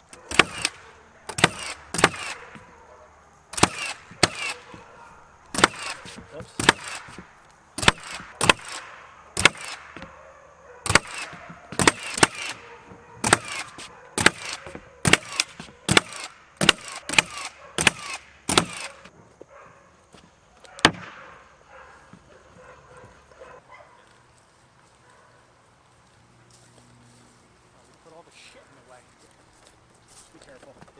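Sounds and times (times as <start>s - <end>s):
nails hammered into wood: 0.1s - 2.7s, 3.5s - 4.8s, 5.5s - 10.1s, 10.8s - 12.6s, 13.2s - 19.1s, 20.8s - 21.2s.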